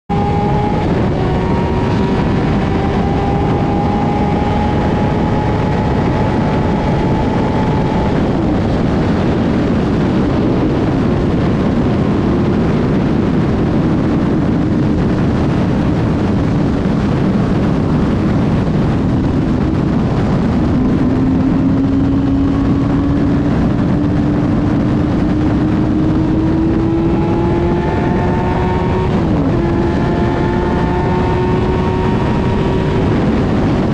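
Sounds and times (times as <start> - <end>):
motorcycle engine at high speed: 0.0 - 33.9
wind rush: 0.1 - 33.9.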